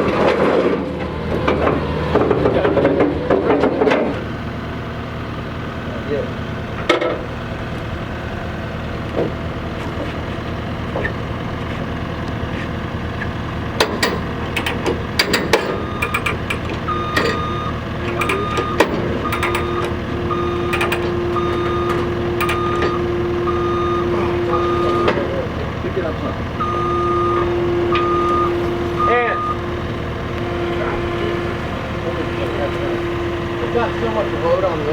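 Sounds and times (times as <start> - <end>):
truck engine running: 0.0 - 34.9
metal clanks and clicks: 13.8 - 20.0, 20.7 - 23.0
reversing alarm beeping: 13.9 - 25.4, 26.6 - 29.8.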